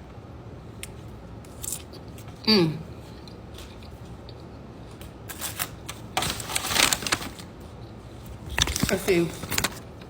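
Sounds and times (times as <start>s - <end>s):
paper wrapper rustling: 5.3s - 7.6s, 8.3s - 9.9s.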